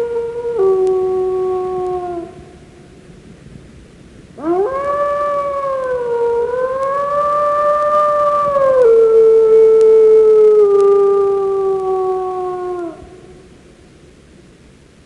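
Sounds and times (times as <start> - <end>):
dog howling: 4.4 - 13.2.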